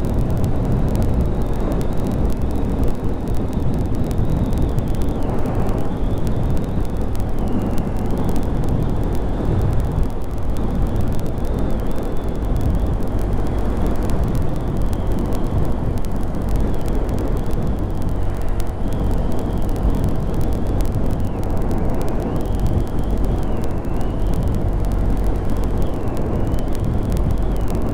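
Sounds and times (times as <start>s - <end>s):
wind rush on microphone: 0.0s - 27.9s.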